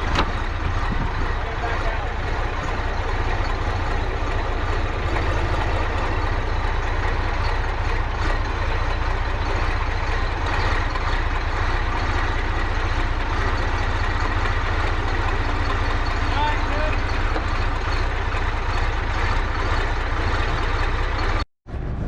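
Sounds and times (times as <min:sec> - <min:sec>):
wind buffeting microphone: 0:00.0 - 0:05.0
tractor diesel engine running: 0:00.0 - 0:22.0.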